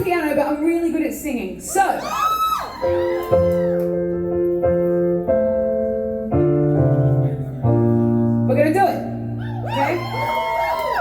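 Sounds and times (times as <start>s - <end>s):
piano slow sustained chords: 3.3s - 10.7s.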